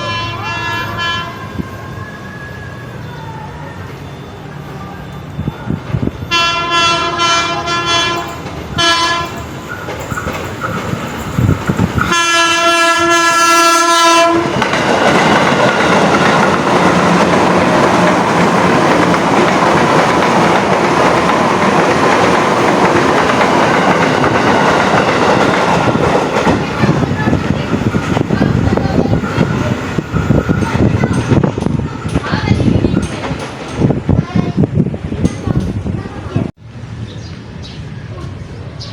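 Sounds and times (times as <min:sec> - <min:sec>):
train horn blasts: 0:00.0 - 0:01.6, 0:06.2 - 0:09.4, 0:12.0 - 0:14.6
train wheels rumbling on rails: 0:00.0 - 0:38.9.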